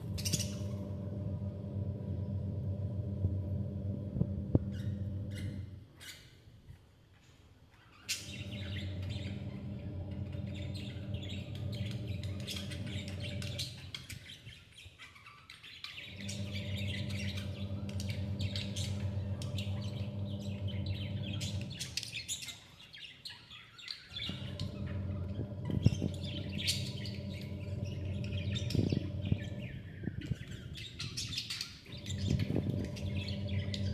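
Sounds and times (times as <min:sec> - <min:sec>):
steady low hum: 0:00.0 - 0:05.8, 0:08.2 - 0:14.4, 0:16.0 - 0:22.3, 0:24.2 - 0:33.9
chicks chirping: 0:08.1 - 0:14.5, 0:15.8 - 0:22.8, 0:23.4 - 0:33.9.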